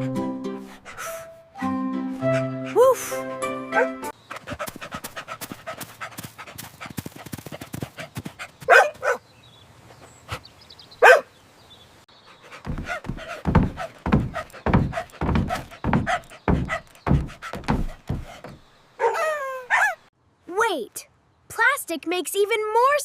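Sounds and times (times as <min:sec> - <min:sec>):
cartoon dog barking: 0:08.7 - 0:09.2, 0:11.0 - 0:11.3
regular low thumps: 0:12.6 - 0:18.6.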